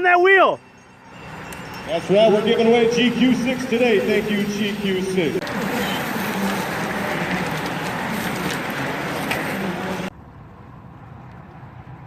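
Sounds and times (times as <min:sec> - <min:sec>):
bicycle wheels whirring past: 0:05.4 - 0:10.1.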